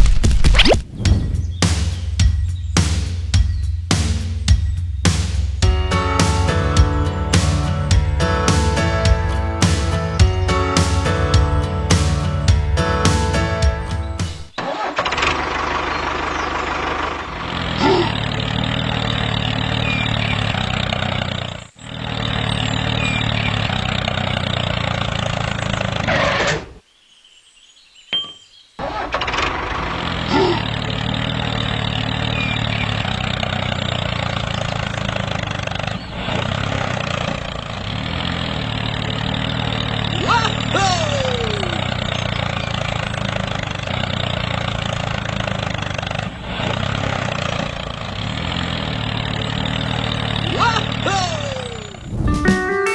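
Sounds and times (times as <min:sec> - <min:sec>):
music: 0:01.1 - 0:14.5, 0:52.3 - 0:52.9
tractor engine running: 0:01.1 - 0:26.5, 0:28.8 - 0:52.6.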